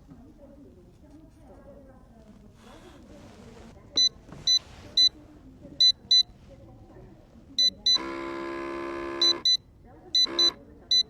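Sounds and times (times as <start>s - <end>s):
short high control panel beeps: 10.2s - 11.0s.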